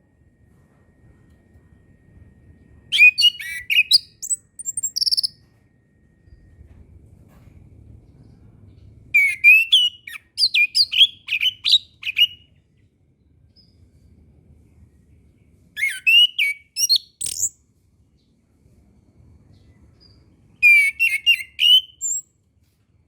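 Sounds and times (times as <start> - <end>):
faint low hum: 0.0 - 23.0
thrush singing whistled notes: 2.9 - 5.4, 9.2 - 12.4, 15.8 - 17.6, 20.6 - 22.2.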